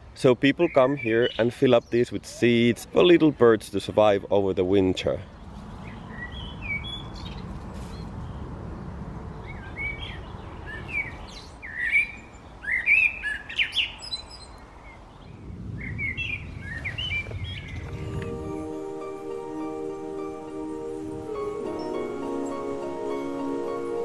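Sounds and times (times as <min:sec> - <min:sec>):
songbirds chirping and singing: 0:00.5 - 0:02.2
low background hiss: 0:17.8 - 0:24.0.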